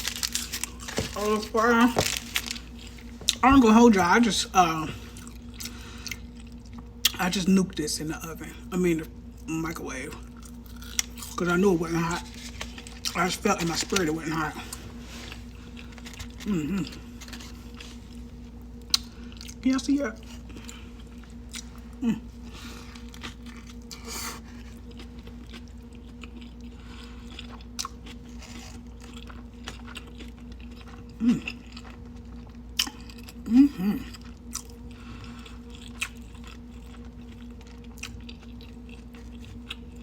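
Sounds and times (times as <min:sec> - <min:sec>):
low electrical hum: 0:00.0 - 0:40.0
chewing and biting: 0:10.3 - 0:18.2, 0:22.8 - 0:40.0.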